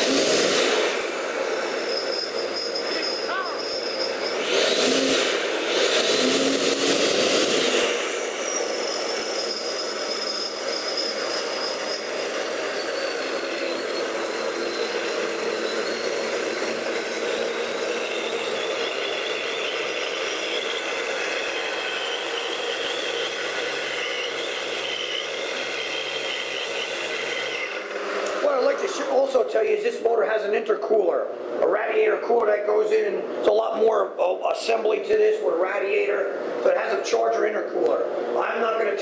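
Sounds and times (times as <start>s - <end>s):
supercharger whine: 0.0s - 30.9s
car engine running: 3.2s - 8.7s, 13.3s - 29.0s.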